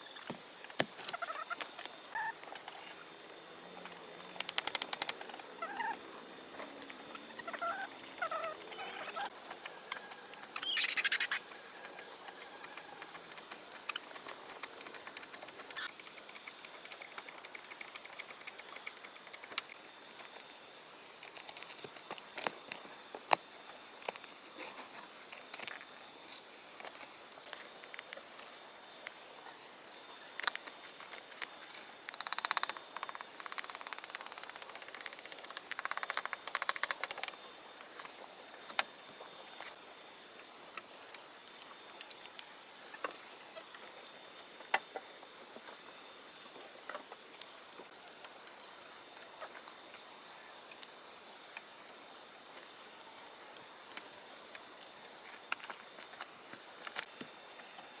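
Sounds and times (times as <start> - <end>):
faint high chirping: 1.1 - 22.3.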